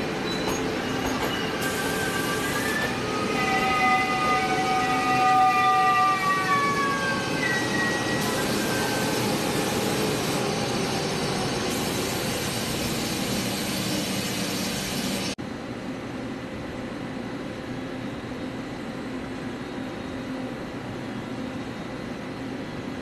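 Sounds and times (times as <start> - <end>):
train horn: 2.4 - 7.2
train rushing rumble: 6.7 - 15.4.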